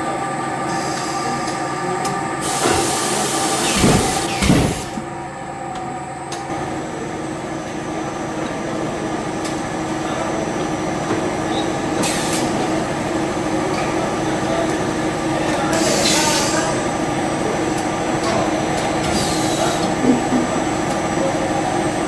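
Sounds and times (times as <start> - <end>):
machinery humming: 0.0 - 22.0
air hissing: 2.4 - 5.0, 15.7 - 16.8, 19.1 - 19.9.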